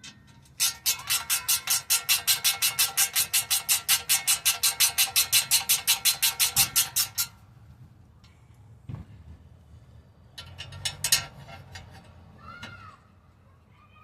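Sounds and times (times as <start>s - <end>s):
ratchet wrench clicking: 0.0s - 7.4s, 10.3s - 12.2s.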